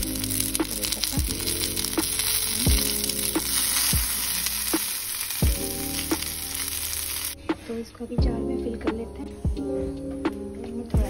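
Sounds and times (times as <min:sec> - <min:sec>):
vegetables sizzling in hot oil: 0:00.0 - 0:07.4
background music with slow beat: 0:00.0 - 0:11.0.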